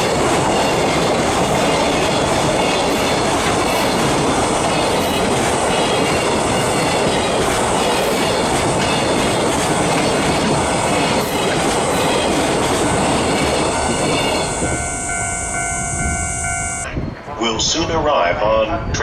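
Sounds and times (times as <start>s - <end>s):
freight train passing: 0.0s - 18.2s
steady high tones: 10.2s - 17.0s.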